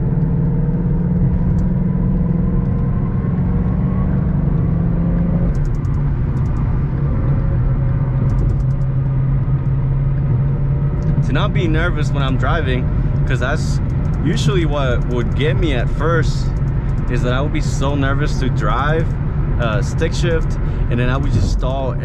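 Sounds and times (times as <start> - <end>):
car engine running at low revs: 0.0 - 22.0.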